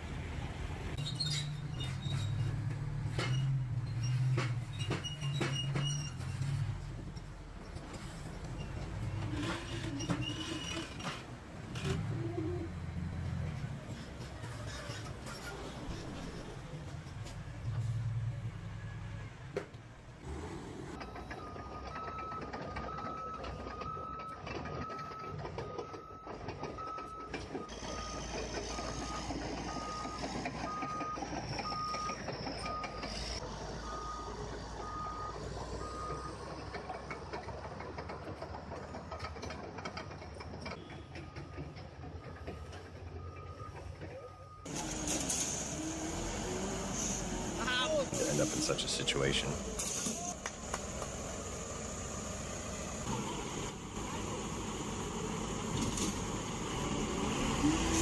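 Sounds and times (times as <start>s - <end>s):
reversing alarm beeping: 21.0s - 36.4s
engine running: 44.7s - 58.0s.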